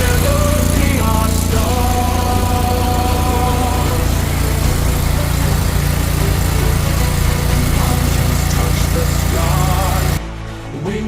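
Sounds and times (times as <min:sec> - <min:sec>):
petrol engine running: 0:00.0 - 0:10.2.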